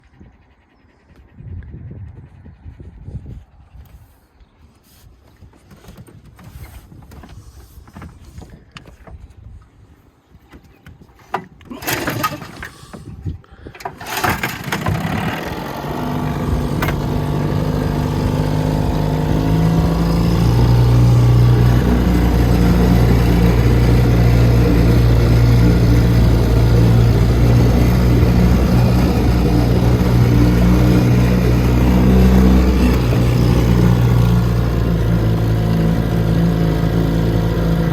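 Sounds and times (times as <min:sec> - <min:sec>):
outboard motor running: 0:11.6 - 0:37.9.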